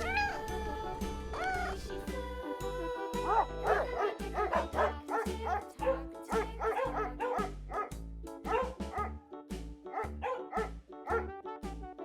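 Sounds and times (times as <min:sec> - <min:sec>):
background music with steady beat: 0:00.0 - 0:12.0
dog barking: 0:03.3 - 0:07.9, 0:08.5 - 0:09.2, 0:09.9 - 0:11.3.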